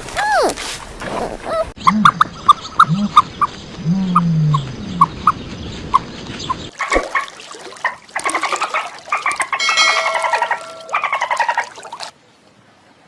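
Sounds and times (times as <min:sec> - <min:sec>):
birds chirping: 0:01.2 - 0:06.8.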